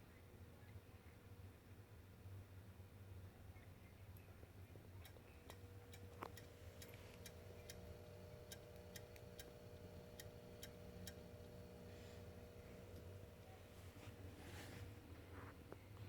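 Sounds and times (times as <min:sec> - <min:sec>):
faint steady hum: 0:00.0 - 0:16.0
console clicking: 0:05.0 - 0:13.5.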